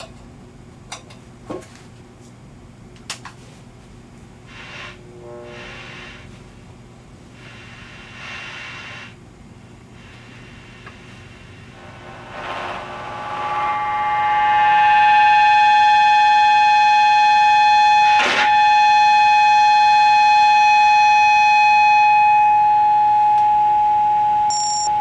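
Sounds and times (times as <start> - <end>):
harsh noise burst: 4.4 - 6.4, 11.3 - 14.9
distorted electric guitar: 4.4 - 6.6, 11.6 - 21.8.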